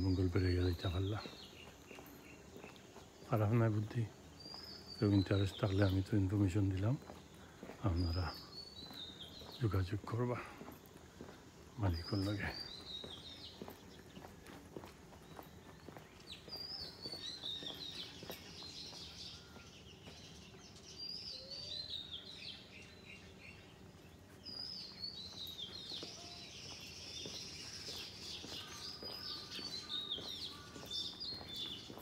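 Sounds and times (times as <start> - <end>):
birds chirping: 0.0 - 32.0
faint background noise: 0.0 - 32.0.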